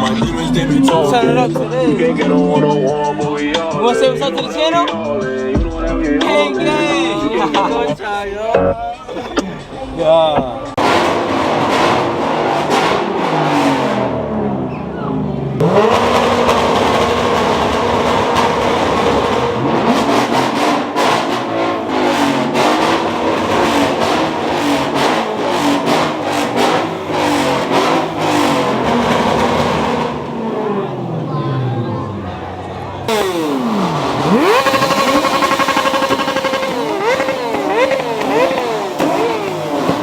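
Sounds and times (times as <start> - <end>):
car engine revving with crackles: 0.0 - 2.2, 10.7 - 40.0.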